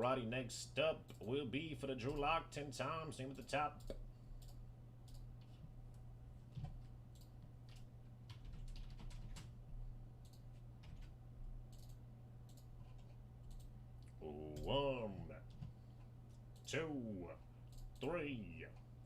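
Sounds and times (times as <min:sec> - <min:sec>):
keyboard and mouse clicks: 0:03.8 - 0:09.6, 0:10.2 - 0:14.8.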